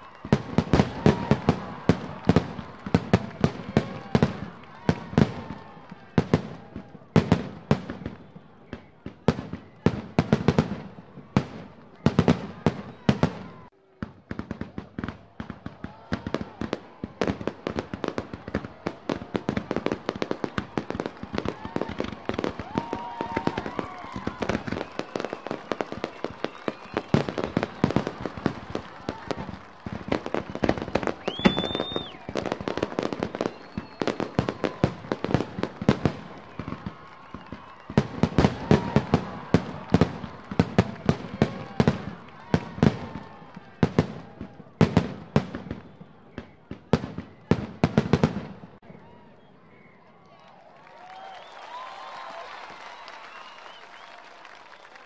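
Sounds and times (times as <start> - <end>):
fireworks bangs and crackling: 0.0 - 49.8
whistling firework shell: 19.6 - 43.6, 44.3 - 50.2, 51.1 - 55.0.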